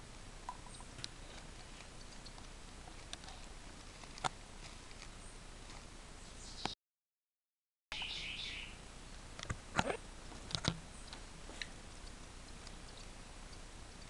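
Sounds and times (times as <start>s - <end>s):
young birds clicking: 0.4s - 5.8s, 10.4s - 14.0s
high bird peep: 6.2s - 6.8s, 7.9s - 8.8s.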